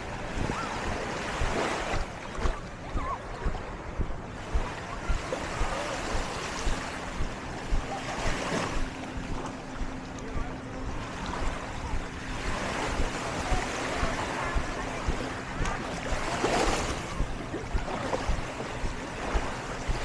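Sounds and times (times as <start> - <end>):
faint steady hum: 0.0 - 20.0
wind buffeting microphone: 0.0 - 20.0
surf washing onto sand: 11.0 - 20.0.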